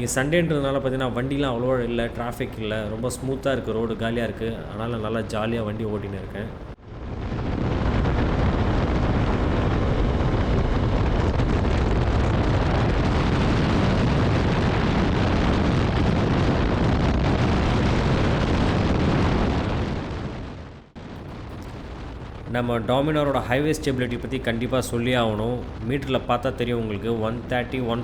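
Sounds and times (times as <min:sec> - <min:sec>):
wind buffeting microphone: 0:00.0 - 0:28.0
motorcycle engine: 0:08.2 - 0:11.9.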